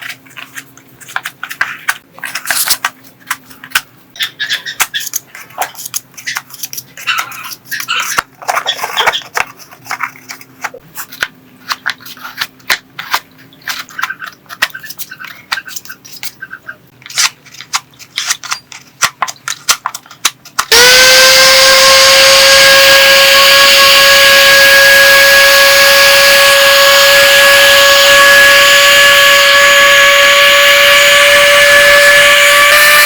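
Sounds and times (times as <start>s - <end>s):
small parts and tools handled: 4.8s - 16.4s, 17.0s - 20.7s
high-pitched whine: 20.7s - 33.0s.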